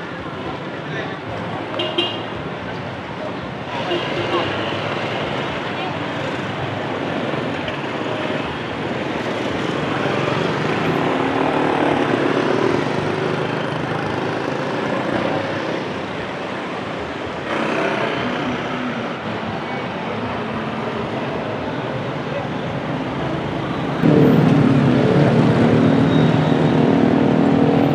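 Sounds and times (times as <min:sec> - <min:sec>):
motorcycles and scooters passing: 0:17.4 - 0:18.9.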